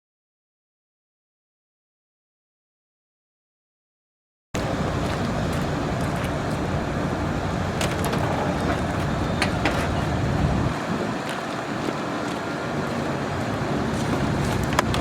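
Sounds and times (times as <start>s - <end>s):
diesel truck engine idling: 4.6s - 15.0s.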